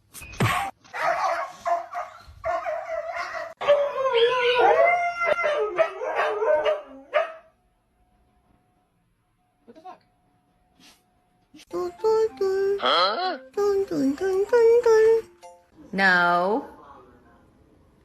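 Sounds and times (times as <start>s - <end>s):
dog howling: 2.4s - 7.2s.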